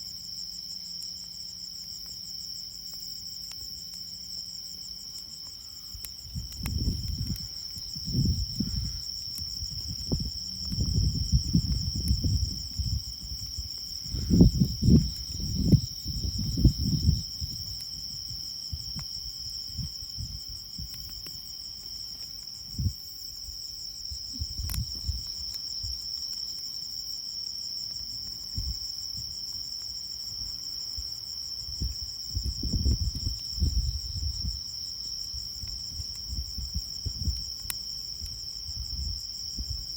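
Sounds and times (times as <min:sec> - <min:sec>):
insects chirring: 0:00.0 - 0:39.9
low rumbling gusts: 0:06.3 - 0:21.0.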